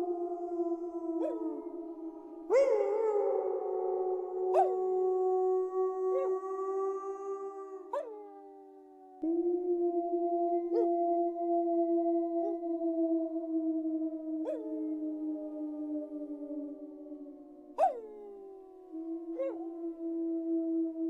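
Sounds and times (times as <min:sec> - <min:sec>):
wolves howling: 0:00.0 - 0:21.0.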